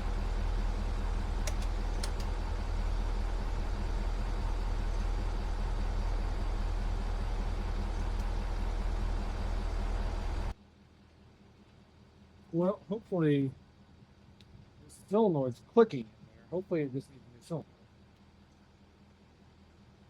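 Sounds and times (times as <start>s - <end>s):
pickup truck engine idling: 0.0s - 20.0s
short clicks: 1.4s - 2.3s.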